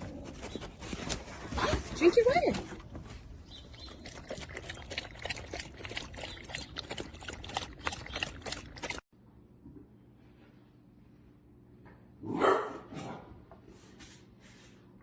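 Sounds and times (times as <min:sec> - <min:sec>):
dog lapping water from metal bowl: 0:02.9 - 0:09.0.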